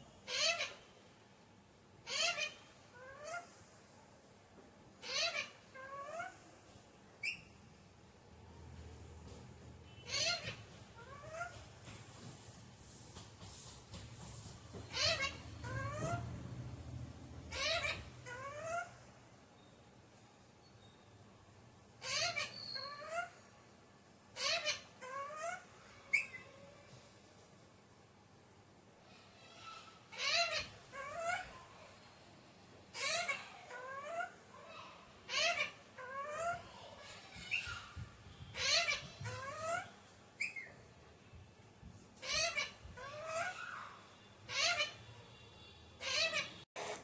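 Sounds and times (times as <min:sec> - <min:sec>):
parakeet squawking: 0:00.2 - 0:00.9, 0:02.0 - 0:03.5, 0:05.0 - 0:06.4, 0:09.9 - 0:11.6, 0:14.8 - 0:16.7, 0:17.3 - 0:19.0, 0:22.0 - 0:23.4, 0:24.4 - 0:26.6, 0:29.4 - 0:31.6, 0:32.9 - 0:40.8, 0:42.2 - 0:45.1, 0:46.0 - 0:47.0.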